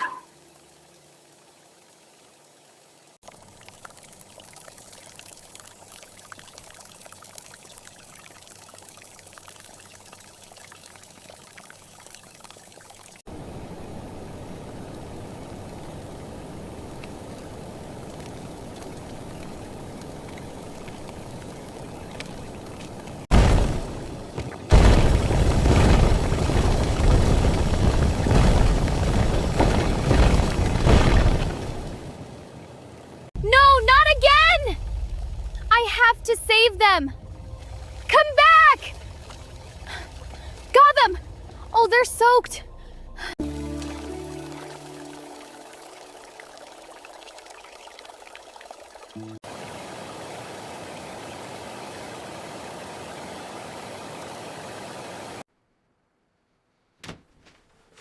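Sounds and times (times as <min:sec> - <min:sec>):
wind: 0:00.0 - 0:58.0
steady rain falling: 0:00.2 - 0:36.9, 0:43.4 - 0:55.4
heavy rain: 0:23.1 - 0:36.4, 0:49.2 - 0:55.4.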